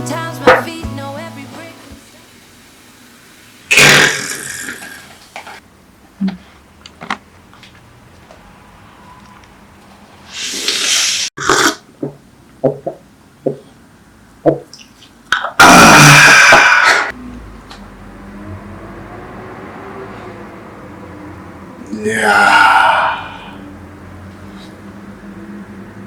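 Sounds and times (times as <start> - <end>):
noisy bursts: 0.0 - 5.2.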